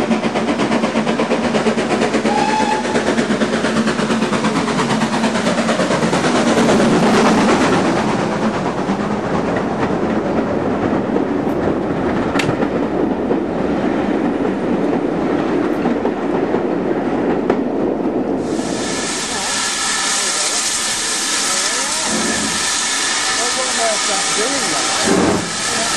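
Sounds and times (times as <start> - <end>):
train rolling on rails: 0.0 - 25.9
steam hiss: 0.1 - 8.8, 18.4 - 25.9
wheels clicking over rail joints: 8.9 - 13.5.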